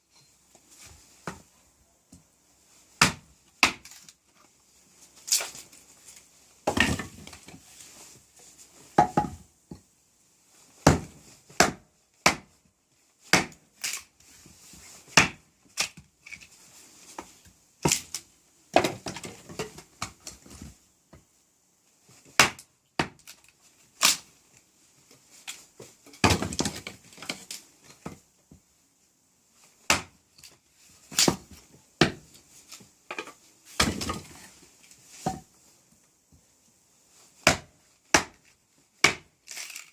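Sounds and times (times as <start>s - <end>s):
wood splitting crackle: 13.3s - 14.1s, 39.0s - 39.9s.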